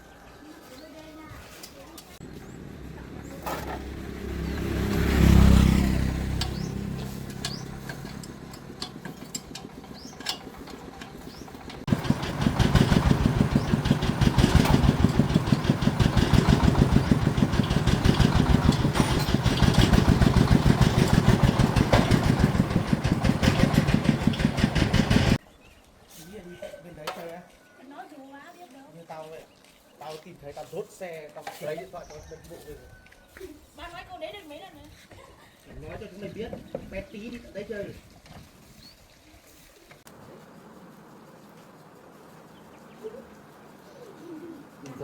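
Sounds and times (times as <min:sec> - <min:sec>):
loud low engine sound: 0:02.2 - 0:25.4
engine putter: 0:03.1 - 0:25.4.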